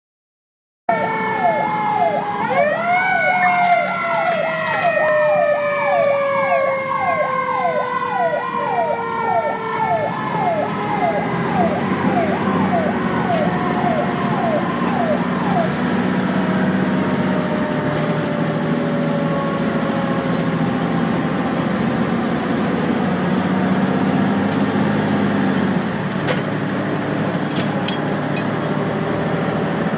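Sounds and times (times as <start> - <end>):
siren tone sliding down: 0.9 - 22.1
fire engine siren yelping: 0.9 - 29.9
fire truck engine rumbling: 0.9 - 29.9.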